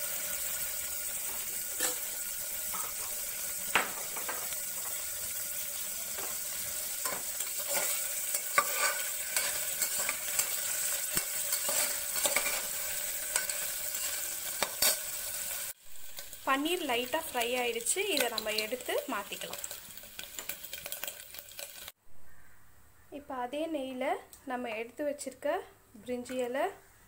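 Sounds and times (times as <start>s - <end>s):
cheese cubes sizzling in oil: 0.0s - 22.0s
metal spoon scraping a pot: 1.7s - 2.1s, 6.2s - 15.1s.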